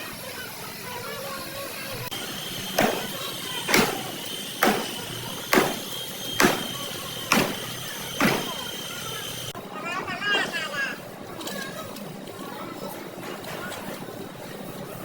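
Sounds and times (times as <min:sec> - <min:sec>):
steady high-pitched whine: 0:00.0 - 0:11.3
hammer striking sheet metal: 0:02.1 - 0:08.6.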